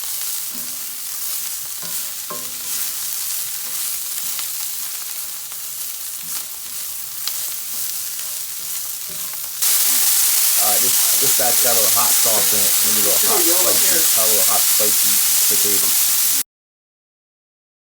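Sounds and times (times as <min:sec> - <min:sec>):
food sizzling in a frying pan: 0:00.0 - 0:16.4.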